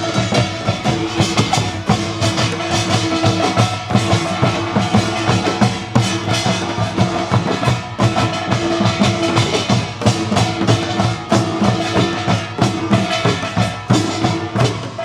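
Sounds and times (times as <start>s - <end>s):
folk percussion ensemble drumming: 0.0s - 15.0s.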